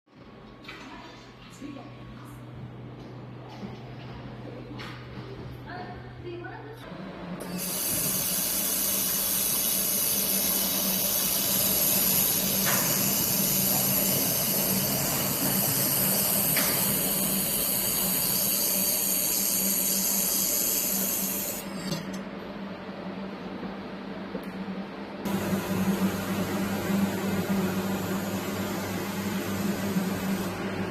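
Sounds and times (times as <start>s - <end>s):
laser welding hiss: 7.4s - 21.8s.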